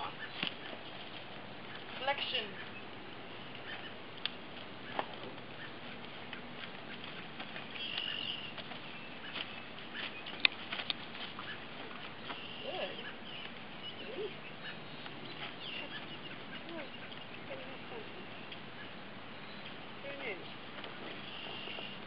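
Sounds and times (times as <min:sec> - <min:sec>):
birds chirping: 0:00.0 - 0:22.0
faint rustles: 0:00.0 - 0:22.0
steady outdoor hiss: 0:00.0 - 0:22.0.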